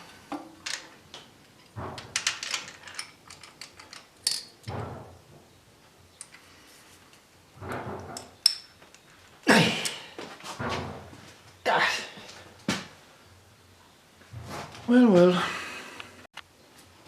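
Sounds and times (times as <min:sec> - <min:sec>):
tools clattering: 0:01.5 - 0:05.0.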